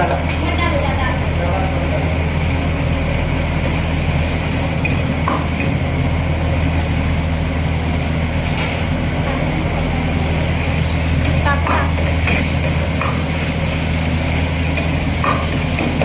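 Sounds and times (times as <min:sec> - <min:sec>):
steady low hum: 0:00.0 - 0:16.0
metal ladle scraping in a wok: 0:10.3 - 0:16.0.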